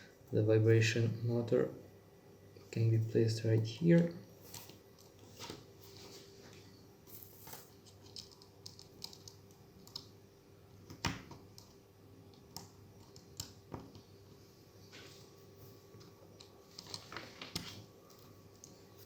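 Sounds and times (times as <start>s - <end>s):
faint steady hum: 0.0s - 19.0s
small parts clicking and tapping: 7.4s - 10.1s.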